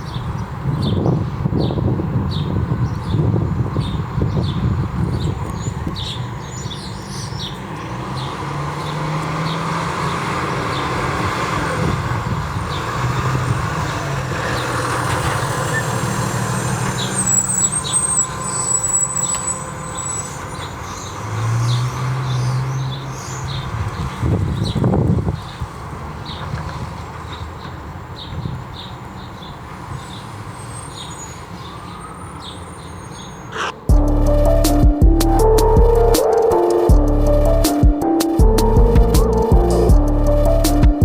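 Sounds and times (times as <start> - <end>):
street noise: 0.0 - 41.0
fire engine diesel engine: 3.4 - 28.1.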